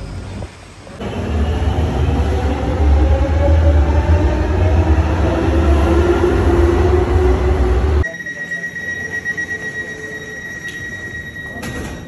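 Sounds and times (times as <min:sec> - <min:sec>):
train rumbling: 0:00.0 - 0:08.1.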